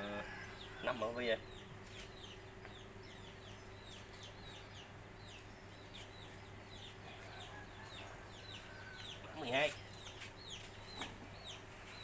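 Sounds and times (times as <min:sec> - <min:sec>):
faint bird chirping: 0:00.0 - 0:12.0
steady low hum: 0:00.0 - 0:12.0.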